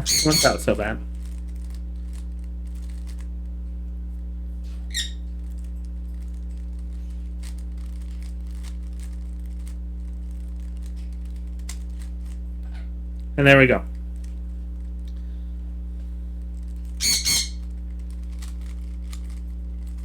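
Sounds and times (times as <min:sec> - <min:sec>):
bird chirp: 0:00.0 - 0:00.6, 0:17.0 - 0:17.6
steady low hum: 0:00.0 - 0:20.0.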